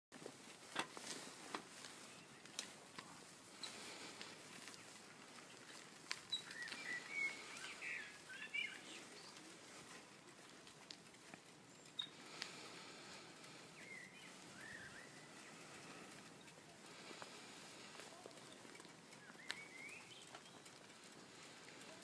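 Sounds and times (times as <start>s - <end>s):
birds chirping: 1.2s - 22.0s.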